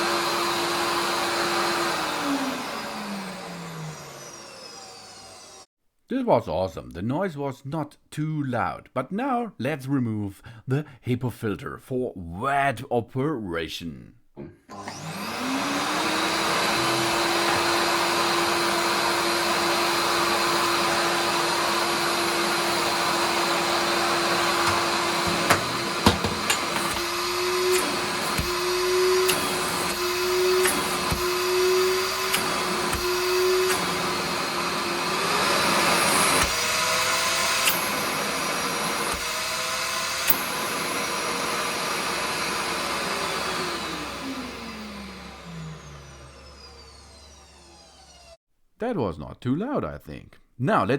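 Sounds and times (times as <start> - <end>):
shop vacuum motor whining: 0.0 - 5.7, 14.4 - 48.4.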